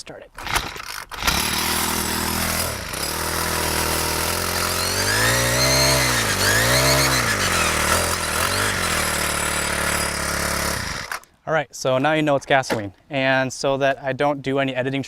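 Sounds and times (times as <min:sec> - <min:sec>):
string trimmer engine revving: 0:00.4 - 0:11.3.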